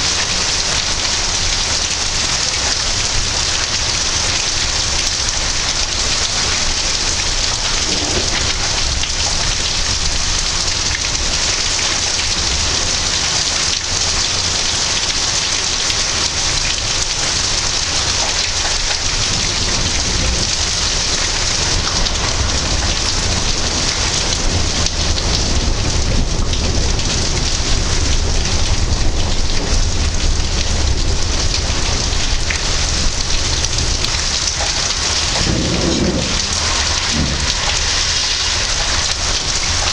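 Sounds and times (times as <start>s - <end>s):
heavy rain pouring: 0.0s - 39.9s
low rumble of thunder: 1.4s - 14.6s, 16.3s - 39.9s.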